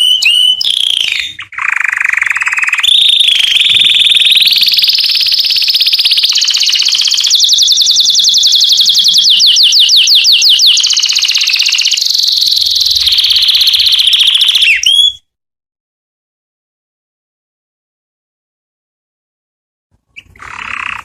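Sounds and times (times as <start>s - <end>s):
canary singing trills: 0.0s - 15.3s, 20.1s - 21.0s.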